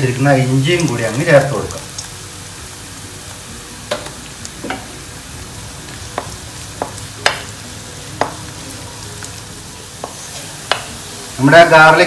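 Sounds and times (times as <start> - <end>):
garlic sizzling in oil: 0.0 - 12.0
wooden spatula knocking on pan: 6.1 - 7.5, 10.0 - 10.9.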